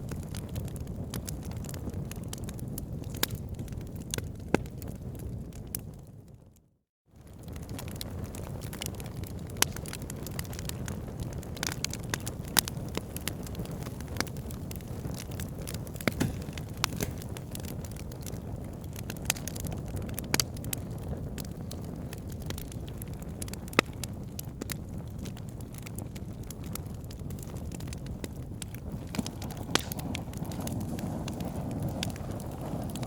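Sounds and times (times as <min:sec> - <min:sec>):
fire crackling and popping: 0:00.0 - 0:06.5, 0:07.2 - 0:33.0
fire flames rushing: 0:07.2 - 0:33.0.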